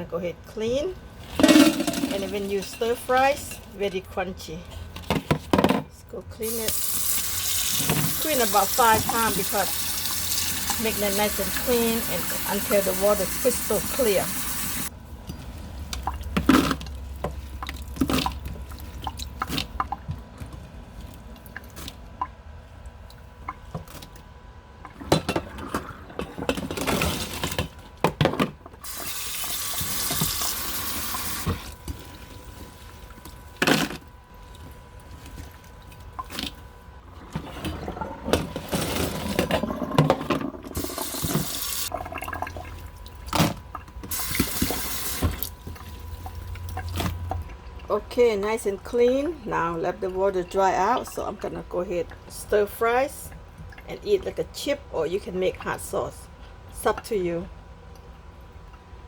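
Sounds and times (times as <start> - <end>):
water running into basin: 6.4 - 14.9, 28.8 - 33.2, 40.6 - 47.9.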